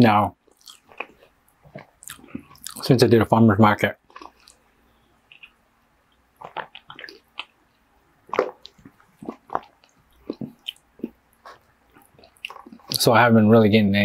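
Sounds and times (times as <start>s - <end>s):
wet chewing and mouth smacks: 0.4s - 2.9s, 4.0s - 13.0s.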